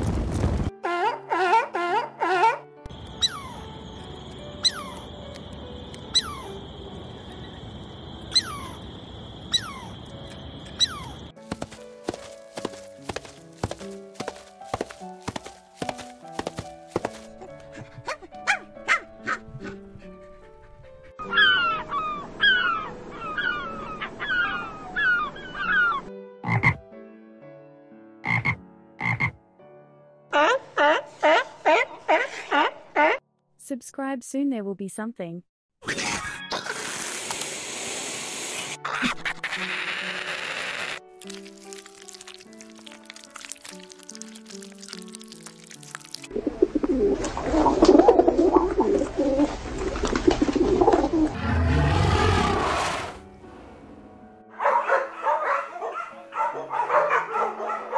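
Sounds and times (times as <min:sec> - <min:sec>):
frogs croaking: 0:02.9 - 0:12.2, 0:26.4 - 0:26.8, 0:28.2 - 0:29.4.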